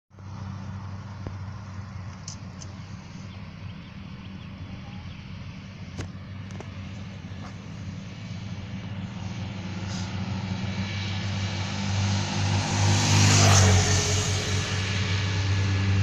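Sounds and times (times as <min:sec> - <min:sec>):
turboprop engines humming: 0:00.1 - 0:16.0.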